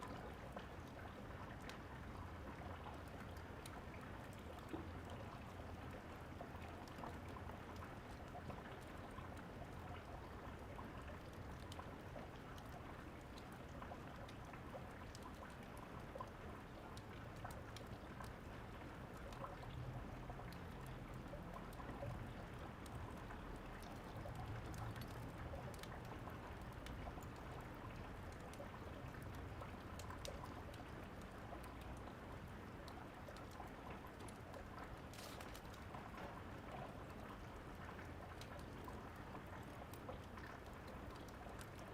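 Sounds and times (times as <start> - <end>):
faint fireplace crackles: 0.0 - 41.9
steady rainfall: 16.4 - 41.9.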